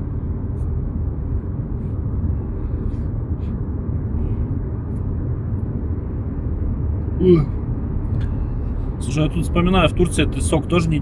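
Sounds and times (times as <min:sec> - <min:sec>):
car cabin road drone: 0:00.0 - 0:11.0.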